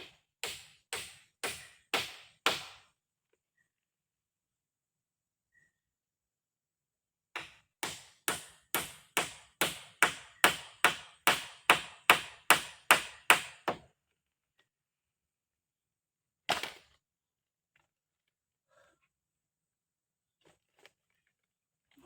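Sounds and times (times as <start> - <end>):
tool striking wood: 0.0 - 2.8, 7.4 - 13.9.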